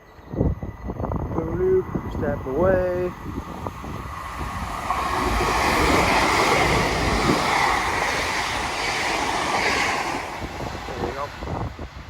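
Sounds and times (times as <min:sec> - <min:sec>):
train passing at speed: 0:00.0 - 0:12.0.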